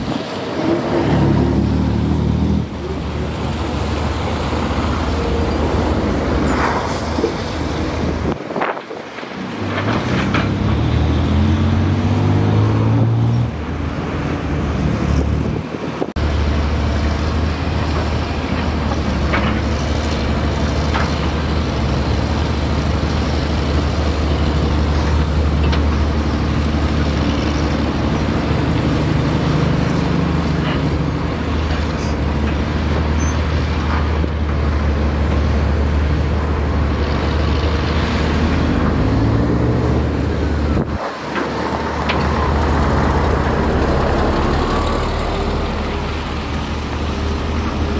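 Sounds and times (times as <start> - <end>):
heavy diesel engine revving: 0.0 - 8.3, 9.6 - 13.8, 33.8 - 47.9.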